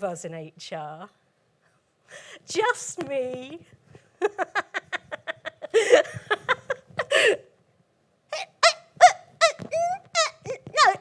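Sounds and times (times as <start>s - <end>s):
woman laughing: 4.2s - 7.4s.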